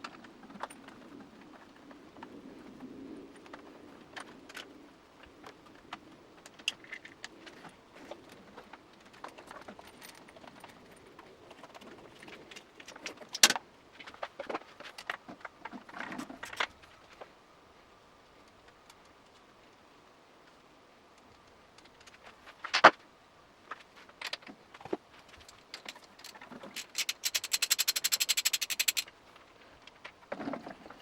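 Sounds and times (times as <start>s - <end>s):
metal parts clinking: 25.4s - 29.1s.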